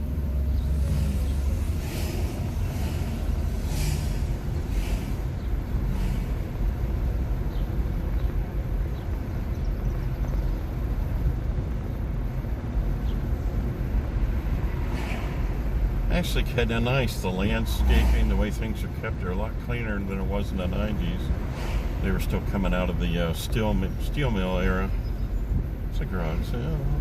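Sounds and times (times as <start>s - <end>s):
road and tyre rumble: 0.0s - 27.0s
faint hissing: 0.2s - 7.6s, 14.9s - 25.3s.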